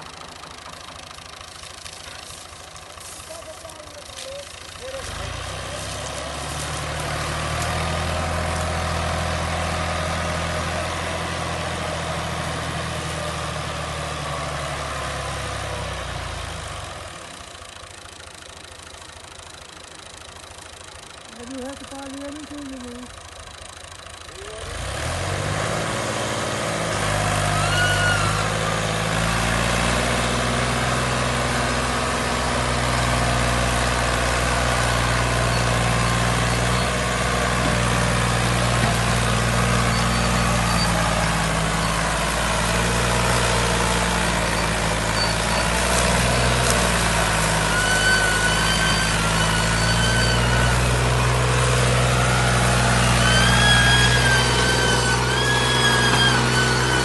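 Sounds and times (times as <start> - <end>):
heavy machine engine drone: 0.0 - 57.0.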